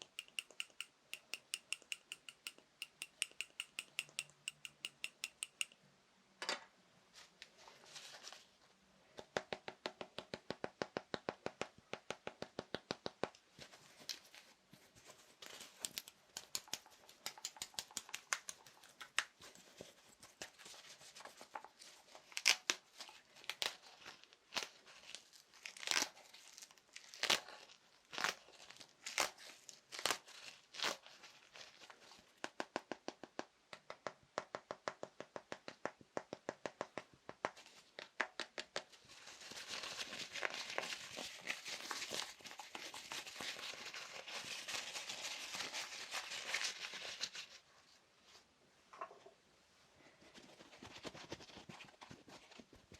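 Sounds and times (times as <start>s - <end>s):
fingers tapping small objects: 0.0s - 5.8s, 9.2s - 13.5s, 15.8s - 19.5s, 32.4s - 39.0s
scratchy crinkly strokes: 7.1s - 8.7s, 38.9s - 48.5s.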